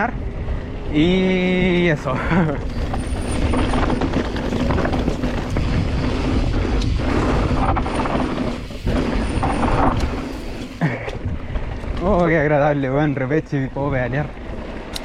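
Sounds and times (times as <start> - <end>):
bike tyres on loose ground: 0.2 - 14.9
bike parts rattling: 1.8 - 12.5.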